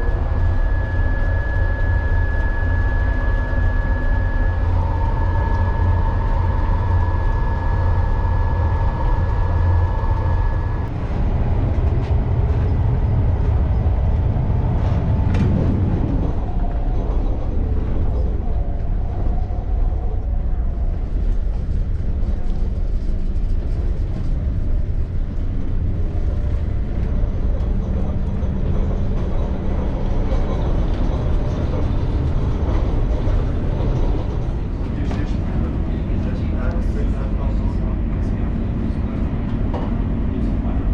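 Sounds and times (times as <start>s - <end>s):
thin high whine: 0.0s - 10.9s
train wheels rumbling: 0.0s - 40.9s.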